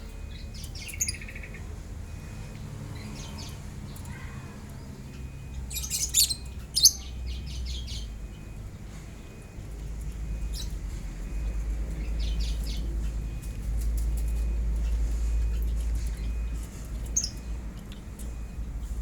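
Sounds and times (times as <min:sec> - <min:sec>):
lovebirds chirping: 0:00.2 - 0:02.3, 0:03.0 - 0:08.6, 0:14.8 - 0:17.6.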